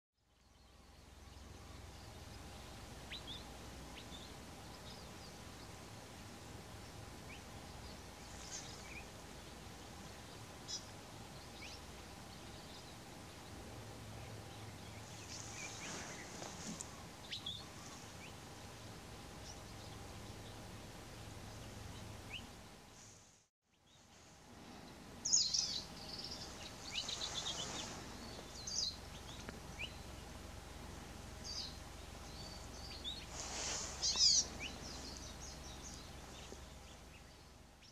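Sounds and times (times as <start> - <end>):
steady low hiss: 0.2 - 37.9
bird chirps and calls: 25.2 - 30.3, 31.4 - 37.9.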